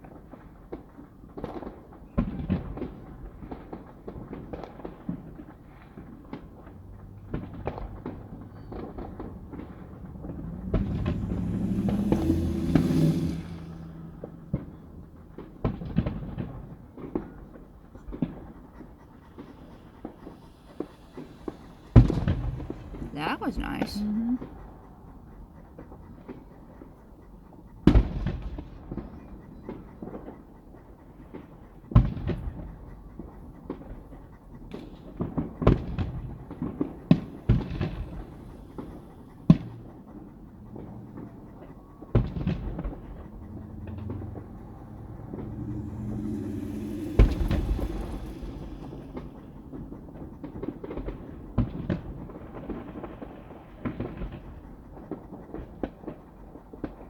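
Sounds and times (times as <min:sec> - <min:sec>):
fireworks hissing: 0:10.6 - 0:14.2, 0:20.2 - 0:24.4, 0:45.4 - 0:49.6.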